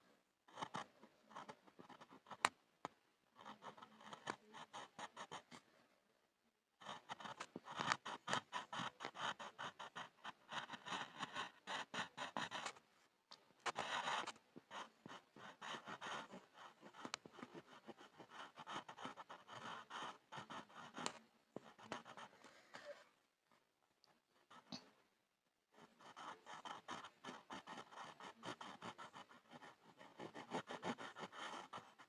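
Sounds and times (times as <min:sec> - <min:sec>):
pencil scribbling on board: 0:00.5 - 0:02.5, 0:03.4 - 0:05.6, 0:06.8 - 0:12.8, 0:13.6 - 0:22.4, 0:25.8 - 0:32.0.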